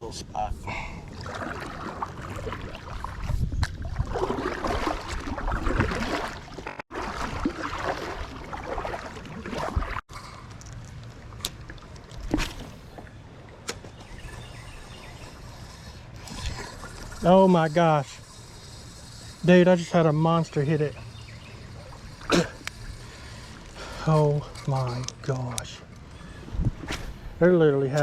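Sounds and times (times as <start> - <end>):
water sloshing around hull: 0.9 - 24.8
paddle splashing: 1.1 - 10.0.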